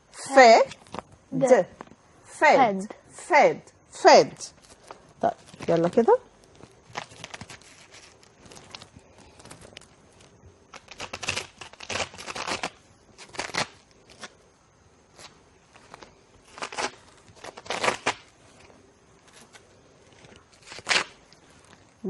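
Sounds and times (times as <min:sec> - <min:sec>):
scratchy tearing and rustling: 0:04.6 - 0:14.4, 0:15.1 - 0:22.0.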